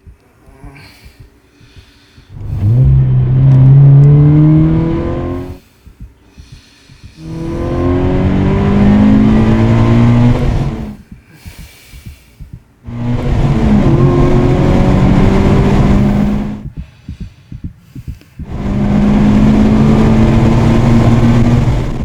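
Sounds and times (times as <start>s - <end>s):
low engine rumble: 0.0s - 22.0s
car engines accelerating: 2.3s - 5.6s, 7.2s - 11.0s, 12.8s - 16.7s, 18.4s - 22.0s.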